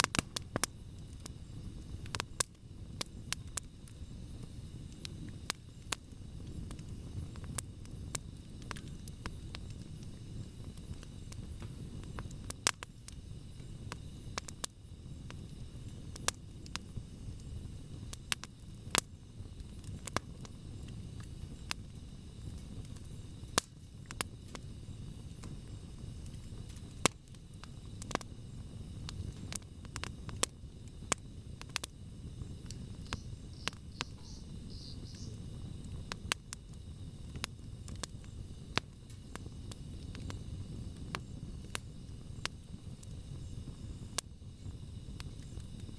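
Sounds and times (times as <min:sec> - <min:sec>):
campfire crackling and popping: 0:00.0 - 0:45.9
low rumble of burning: 0:00.0 - 0:45.9.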